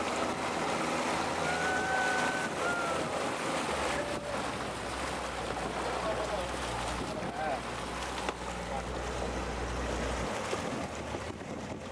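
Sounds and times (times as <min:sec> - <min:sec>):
wind on microphone: 0:00.0 - 0:04.8, 0:10.0 - 0:11.9
boat engine running: 0:00.0 - 0:11.9
waves: 0:00.0 - 0:11.9.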